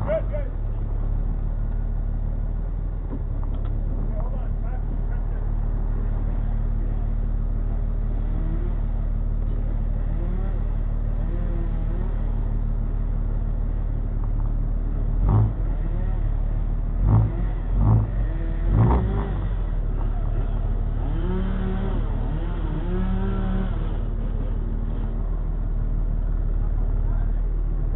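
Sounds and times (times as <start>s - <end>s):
diesel truck engine idling: 0.0s - 27.9s
faint voices: 3.3s - 12.2s, 19.4s - 27.9s.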